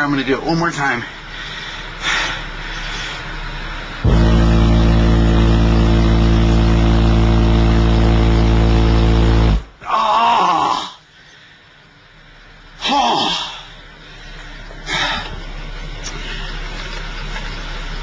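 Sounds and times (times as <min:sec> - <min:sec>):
loud low test tone from subwoofers: 0:01.9 - 0:09.9, 0:11.7 - 0:18.0.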